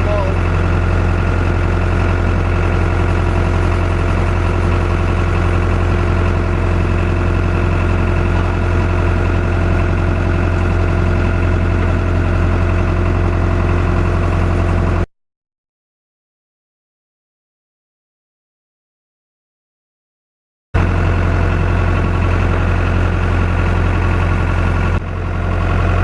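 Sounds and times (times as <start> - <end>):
tractor engine idling: 0.0 - 15.1, 20.8 - 26.0.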